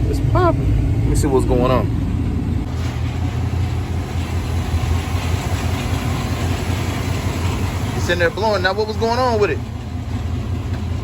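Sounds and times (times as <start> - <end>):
air conditioning running: 0.0 - 11.0
car engine idling: 0.0 - 11.0.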